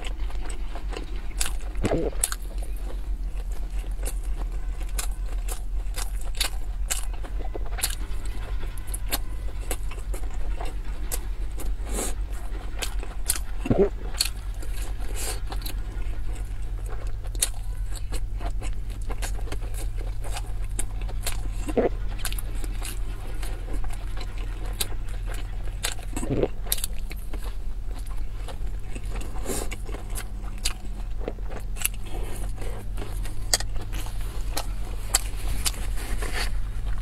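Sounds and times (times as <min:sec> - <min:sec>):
steady low hum: 0:00.0 - 0:37.0
wet chewing and mouth clicks: 0:00.0 - 0:37.0
throat hums: 0:01.7 - 0:02.2, 0:13.6 - 0:14.1, 0:21.6 - 0:22.1, 0:26.2 - 0:26.6.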